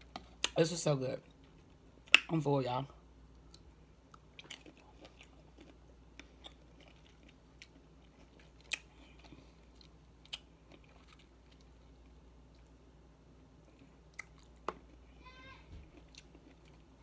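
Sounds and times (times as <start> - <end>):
faint chewing of fruit: 3.3 - 12.9, 13.5 - 15.1, 15.7 - 17.0.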